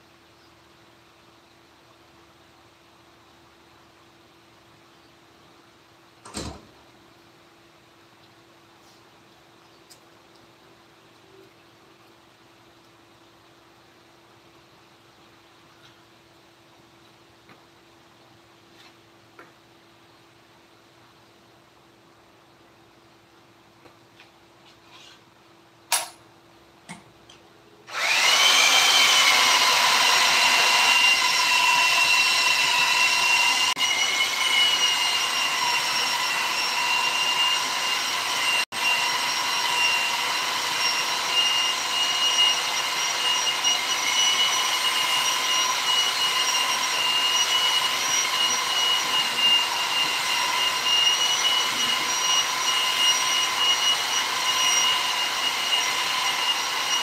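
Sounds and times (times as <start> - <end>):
power tool motor whine: 27.9 - 57.0.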